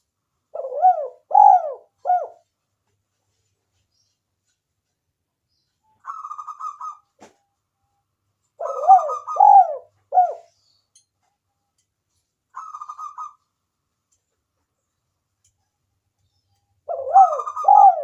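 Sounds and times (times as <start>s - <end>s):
dove cooing: 0.5s - 2.4s, 6.1s - 7.0s, 8.6s - 10.5s, 12.6s - 13.4s, 16.8s - 18.0s.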